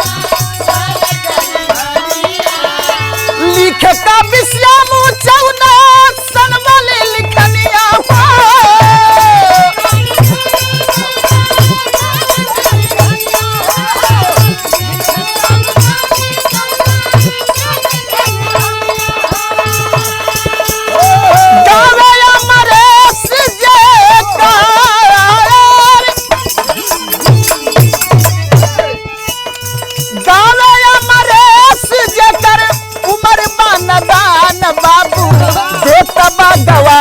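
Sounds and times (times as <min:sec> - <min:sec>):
rattling metal percussion: 0:00.0 - 0:37.0.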